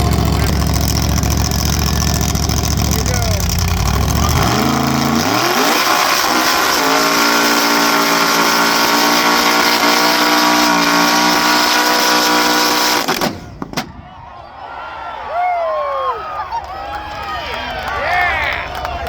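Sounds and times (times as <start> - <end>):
car engine revving: 0.0 - 13.6
sharp bangs: 12.1 - 14.3.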